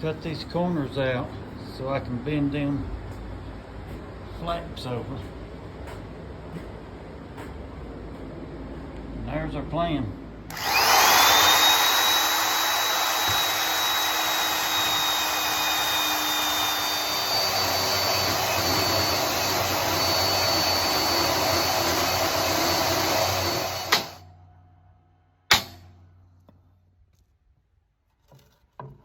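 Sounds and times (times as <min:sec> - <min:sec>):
electric power tool whining: 0:10.5 - 0:24.2.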